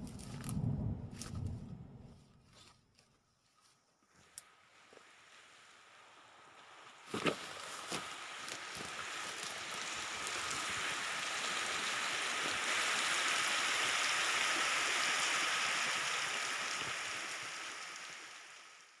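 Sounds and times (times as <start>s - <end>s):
rushing water: 4.4s - 19.0s.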